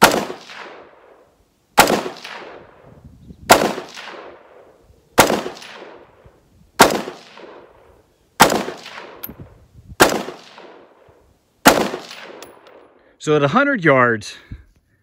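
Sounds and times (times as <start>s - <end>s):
rifle gunshots with echo: 0.0s - 2.8s, 3.5s - 6.2s, 6.8s - 13.0s.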